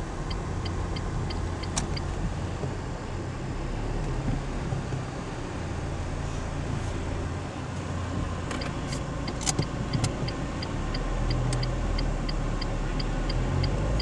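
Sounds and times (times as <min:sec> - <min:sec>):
turn signal ticking: 0:00.0 - 0:03.0, 0:08.1 - 0:14.0
car engine and tyre noise: 0:00.0 - 0:14.0
sharp clicks: 0:00.3 - 0:02.2, 0:08.5 - 0:14.0.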